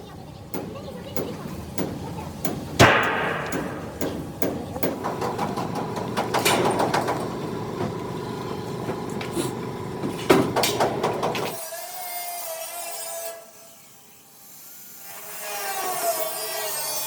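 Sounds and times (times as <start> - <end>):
steady hum: 0.0 - 11.4
knocks and clatter: 0.6 - 8.0, 10.0 - 11.5
loud bang with ringing tail: 2.8 - 4.0.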